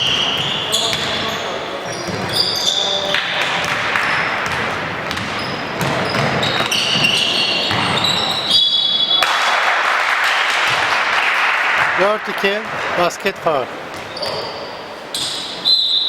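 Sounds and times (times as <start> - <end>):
basketball bouncing on court: 0.0 - 1.3, 2.0 - 2.4, 3.1 - 8.5, 10.6 - 11.0
sneakers squeaking: 0.0 - 9.4, 13.7 - 16.0.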